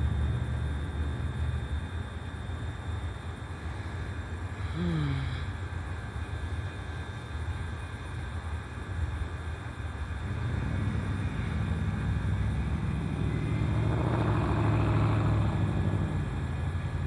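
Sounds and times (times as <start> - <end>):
vehicle engine running: 0.0 - 1.9, 10.0 - 17.0.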